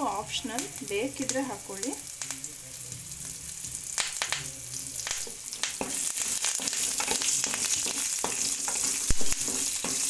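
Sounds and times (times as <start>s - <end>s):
spices sizzling in hot oil: 0.0s - 10.0s
spoon scraping a pan: 5.2s - 10.0s.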